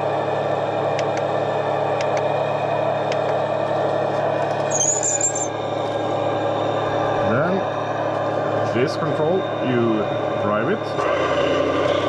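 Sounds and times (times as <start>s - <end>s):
model engine idling drone: 5.5s - 12.0s.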